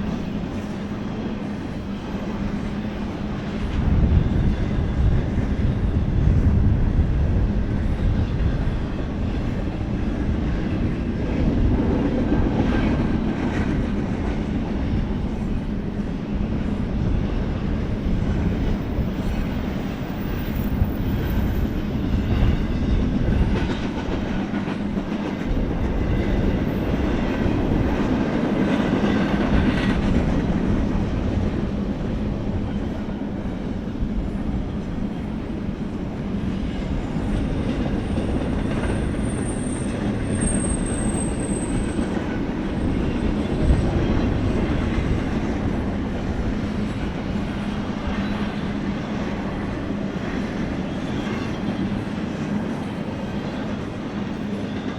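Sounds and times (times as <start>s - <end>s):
freight train rumbling past: 0.0s - 54.9s
high wheel squeal: 38.0s - 42.1s.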